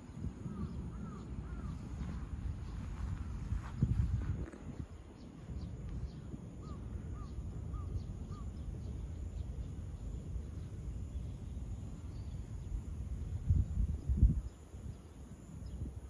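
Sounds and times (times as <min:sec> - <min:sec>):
low outdoor rumble: 0:00.0 - 0:16.0
bird calling: 0:00.4 - 0:02.2, 0:06.1 - 0:09.0.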